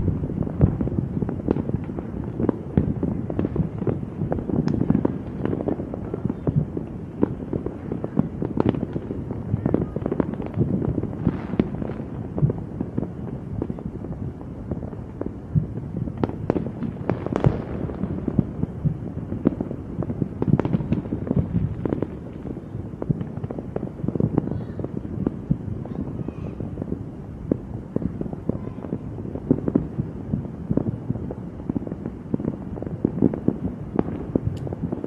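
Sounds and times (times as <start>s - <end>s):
fireworks bangs and crackles: 0.0s - 35.0s
loud firework reports: 0.0s - 35.0s.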